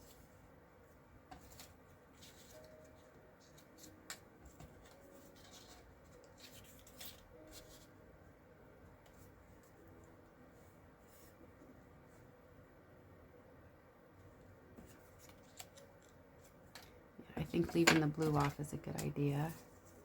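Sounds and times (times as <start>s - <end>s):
cardstock rustling: 1.4s - 7.9s.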